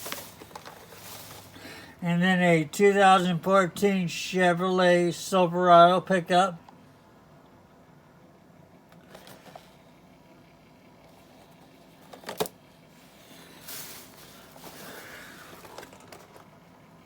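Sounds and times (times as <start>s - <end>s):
toy model handling noises: 0.0s - 1.6s, 8.9s - 9.8s, 11.2s - 16.7s.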